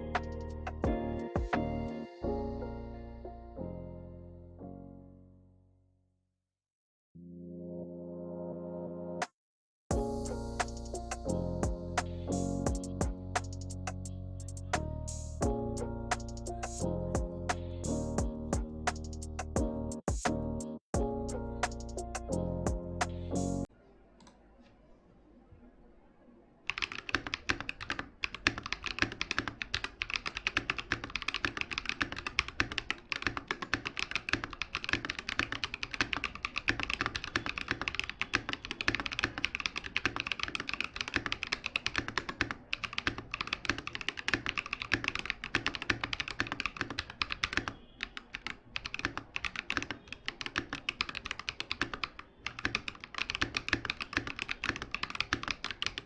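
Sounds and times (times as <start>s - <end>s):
mechanical keyboard typing: 26.7s - 56.0s.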